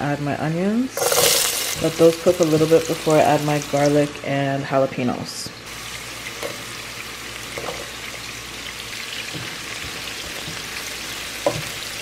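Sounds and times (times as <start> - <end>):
vegetables sizzling in hot oil: 1.0 - 4.2, 5.7 - 12.0.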